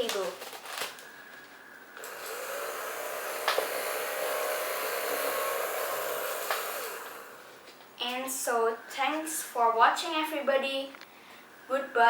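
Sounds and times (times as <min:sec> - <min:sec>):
small electric motor spinning: 0:02.0 - 0:07.7.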